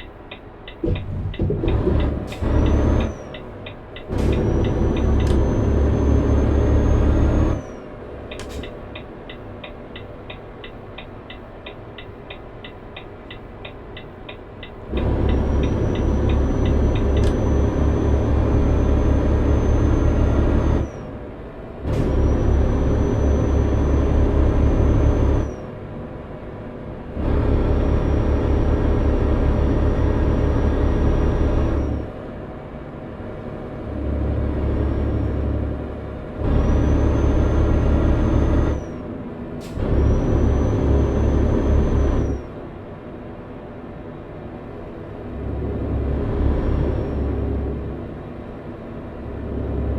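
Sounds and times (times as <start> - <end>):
diesel truck engine: 0.0 - 49.9.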